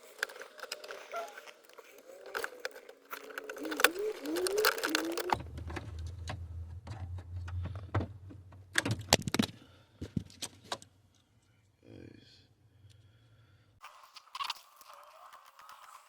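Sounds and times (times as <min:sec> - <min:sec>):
clicks and rattles of tools: 0:00.0 - 0:06.0
low steady hum: 0:01.9 - 0:13.8.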